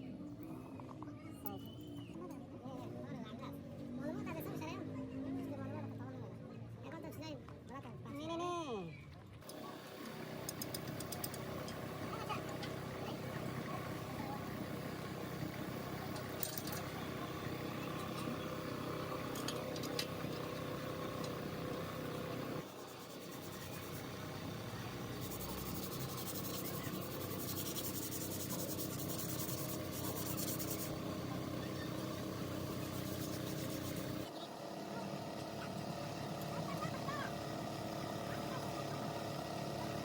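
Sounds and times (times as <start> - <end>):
machine humming: 9.5 - 40.0.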